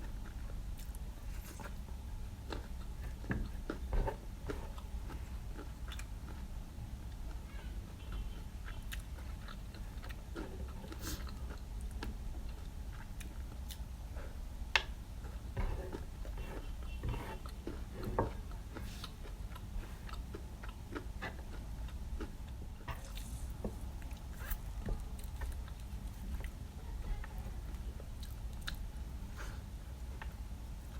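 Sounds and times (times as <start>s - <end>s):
chewing and eating: 0.0s - 30.9s
steady low hum: 0.0s - 30.9s.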